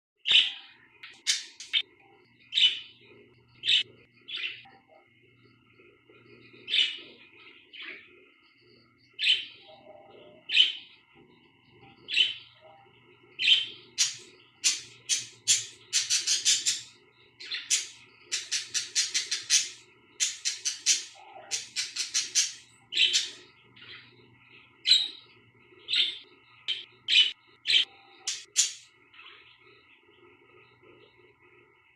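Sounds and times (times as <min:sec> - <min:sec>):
budgerigars chirping: 0:00.3 - 0:01.8, 0:13.4 - 0:24.0.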